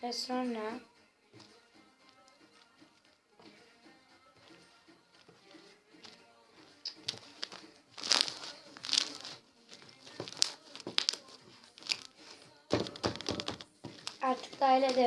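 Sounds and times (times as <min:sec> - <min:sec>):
slime crackling and squelching: 0:06.9 - 0:15.0.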